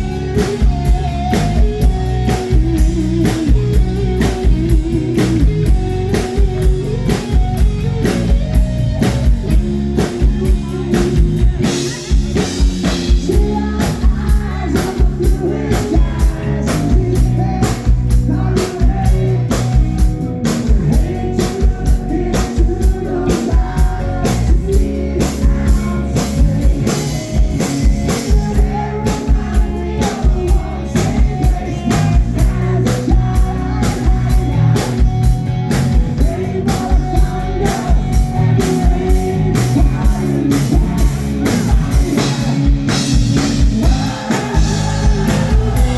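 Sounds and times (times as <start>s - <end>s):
drum kit beat: 0.0s - 45.9s
rock band playing: 0.0s - 45.9s
person singing: 10.0s - 45.9s.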